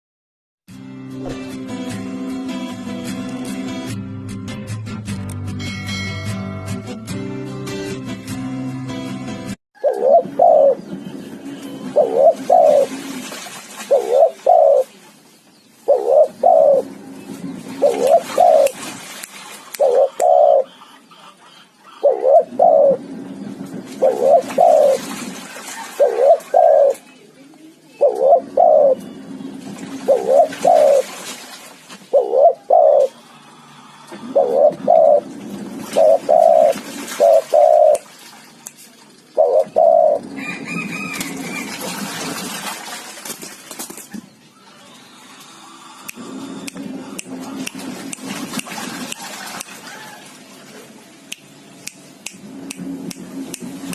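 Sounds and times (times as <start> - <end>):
dove cooing: 9.8 - 11.0, 11.8 - 13.2, 13.9 - 14.9, 15.9 - 17.0, 17.6 - 18.8, 19.8 - 25.1, 25.8 - 27.0, 27.9 - 29.2, 29.9 - 31.1, 32.1 - 33.3, 34.1 - 38.0, 39.4 - 41.8.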